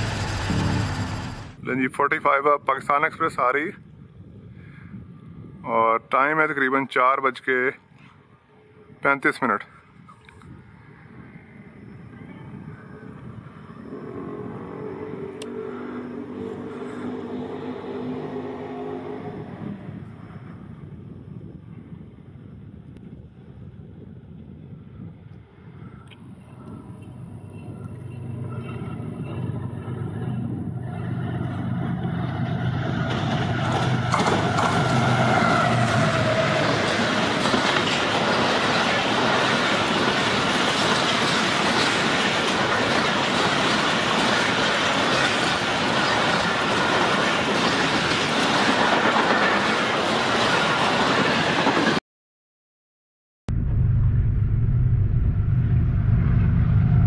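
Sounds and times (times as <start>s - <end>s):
deep engine drone: 0.0s - 1.6s, 13.7s - 20.1s, 26.0s - 32.9s, 53.5s - 57.0s
rush of wheels on rails: 0.0s - 1.6s, 10.5s - 52.0s
diesel locomotive engine hum: 0.0s - 2.1s, 9.7s - 49.8s, 53.5s - 57.0s.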